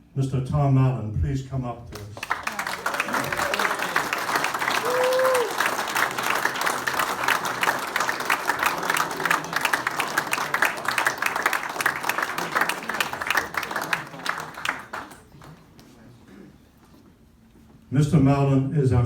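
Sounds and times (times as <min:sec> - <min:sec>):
crowd applauding: 0:02.0 - 0:15.8.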